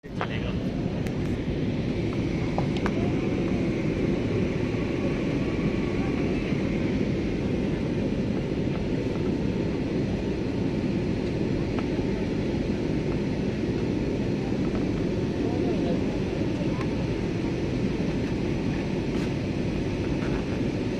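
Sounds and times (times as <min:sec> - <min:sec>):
aeroplane cabin engine drone: 0:00.0 - 0:20.9.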